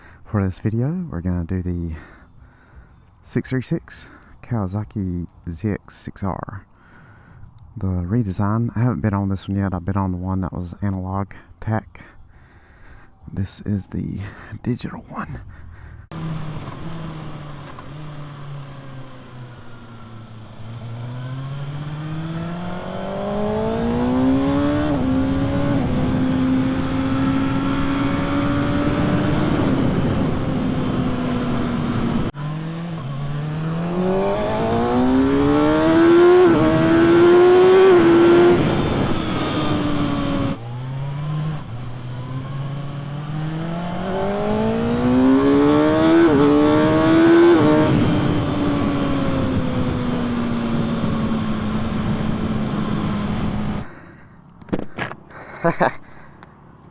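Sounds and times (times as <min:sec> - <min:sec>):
motorcycle engine revving: 0:16.1 - 0:53.9.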